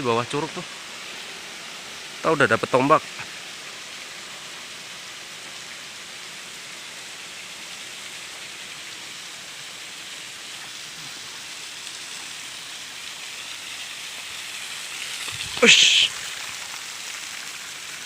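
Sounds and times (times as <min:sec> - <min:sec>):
waterfall rushing: 0:15.0 - 0:17.3.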